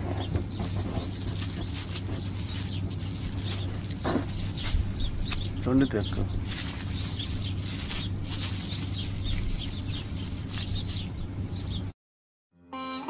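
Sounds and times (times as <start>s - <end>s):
low background hum: 0.0s - 11.9s
small birds chirping: 0.0s - 11.9s
plucked sitar music: 12.6s - 13.0s.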